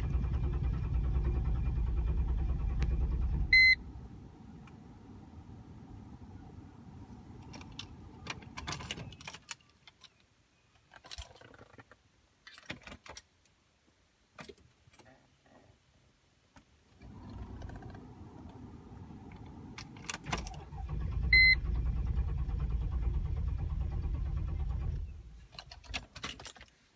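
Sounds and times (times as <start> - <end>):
car starter cranking: 0.0 - 3.8, 17.0 - 26.2
keys jangling and clicking: 25.5 - 26.8.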